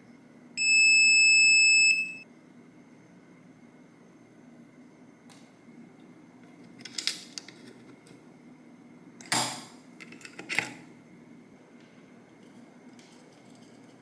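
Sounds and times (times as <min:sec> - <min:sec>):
faint high-pitched tone: 0:00.6 - 0:02.2.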